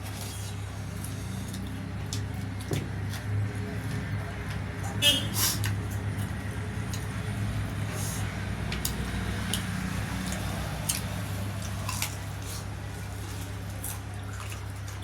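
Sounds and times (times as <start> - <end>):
wet chewing: 8.6 - 15.0.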